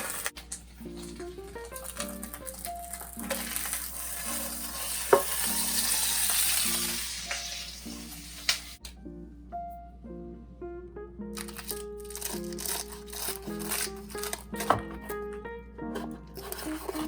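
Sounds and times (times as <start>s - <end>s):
quesadilla sizzling in a pan: 0.0s - 8.8s
background music: 0.0s - 17.0s.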